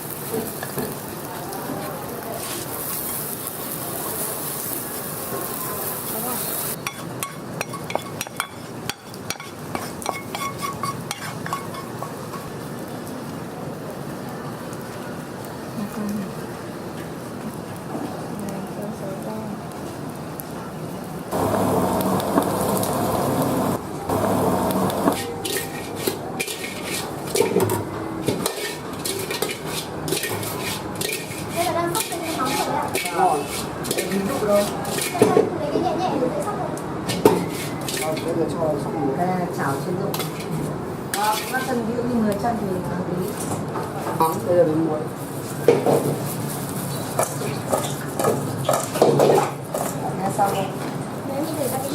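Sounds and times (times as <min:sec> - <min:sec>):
food sizzling in a wok: 0:00.0 - 0:36.0, 0:39.5 - 0:51.9
metal utensil scraping a wok: 0:05.4 - 0:12.5, 0:22.2 - 0:35.3, 0:37.4 - 0:38.3, 0:40.1 - 0:41.8
steady background roar: 0:21.1 - 0:25.5.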